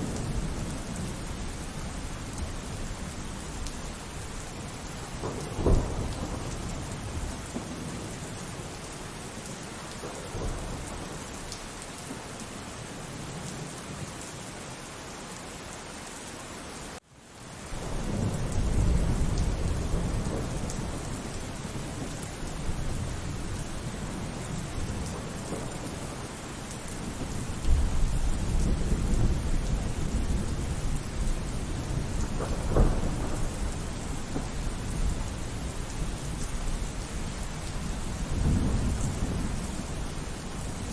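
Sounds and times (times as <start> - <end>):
low thunder rumble: 0.0 - 8.7, 17.8 - 26.3, 27.0 - 40.9
steady rain falling: 0.0 - 40.9
sharp thunderclap: 31.7 - 35.1.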